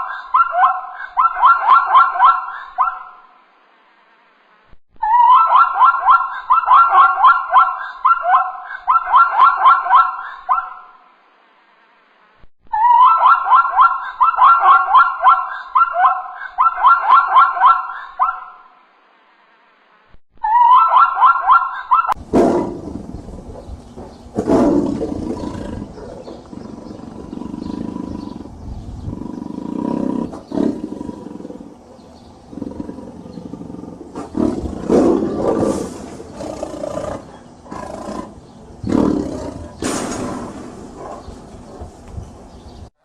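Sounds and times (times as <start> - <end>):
large animal roaring and growling: 24.4 - 31.8, 32.4 - 39.8.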